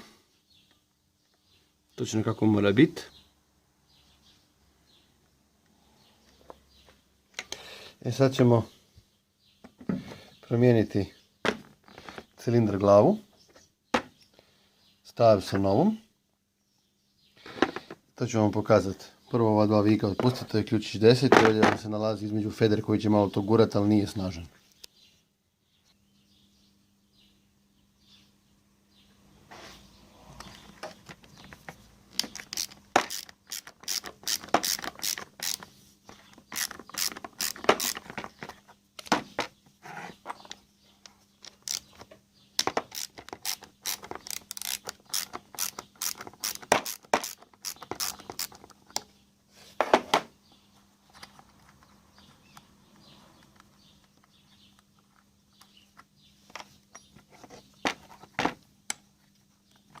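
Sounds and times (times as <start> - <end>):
ratchet wrench clicking: 32.2 - 35.6, 36.6 - 38.0, 42.9 - 48.6.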